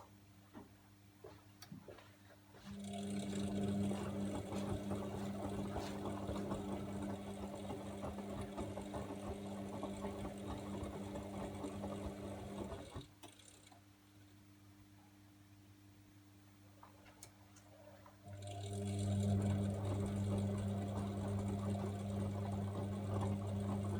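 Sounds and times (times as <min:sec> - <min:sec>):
washing machine motor hum: 0:02.5 - 0:14.3, 0:16.7 - 0:23.9.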